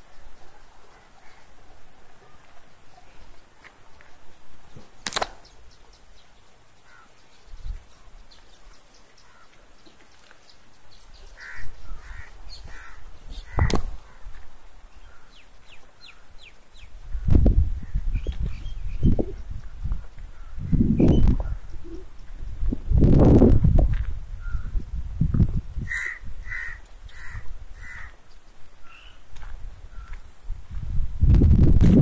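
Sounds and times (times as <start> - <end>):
birds chirping: 0.0 - 22.5, 25.8 - 30.4
harsh bird calls: 4.7 - 14.3, 25.8 - 29.3
low rumble on microphone: 17.0 - 26.5, 29.6 - 32.0.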